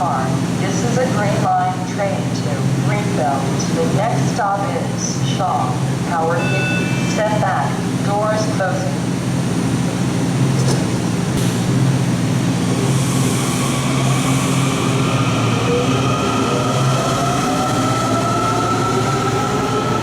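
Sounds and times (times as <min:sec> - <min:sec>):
subway train hum: 0:00.0 - 0:20.0.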